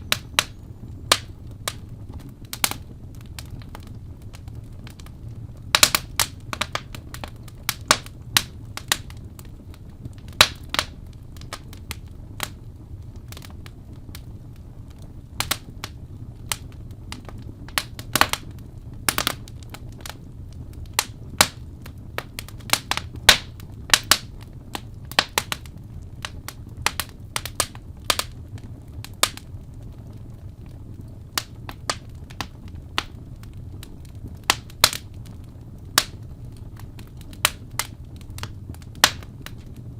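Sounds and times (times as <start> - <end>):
steady low hum: 0.0 - 39.9
wood fire crackling: 0.0 - 39.9.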